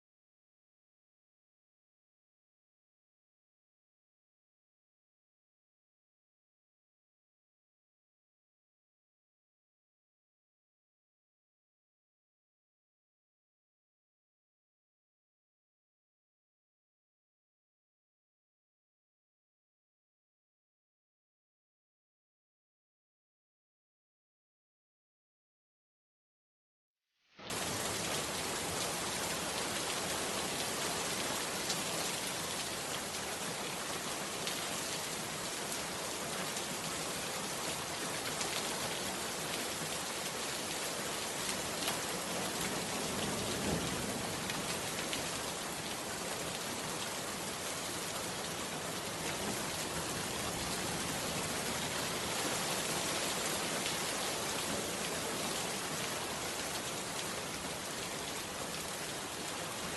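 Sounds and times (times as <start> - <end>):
steady rain falling: 27.4 - 59.9.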